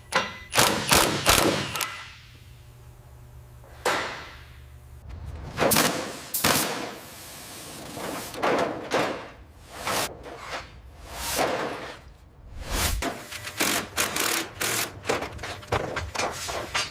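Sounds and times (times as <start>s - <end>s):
swishing sounds: 12.4s - 13.1s.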